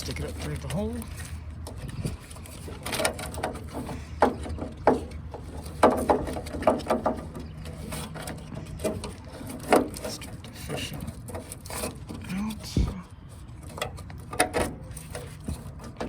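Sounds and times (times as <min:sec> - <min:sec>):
wire scraping on sheet metal: 0:05.4 - 0:12.8.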